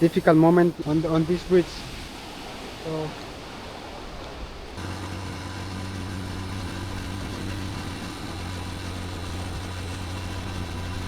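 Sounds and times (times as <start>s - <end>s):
engine hum: 4.6s - 11.0s.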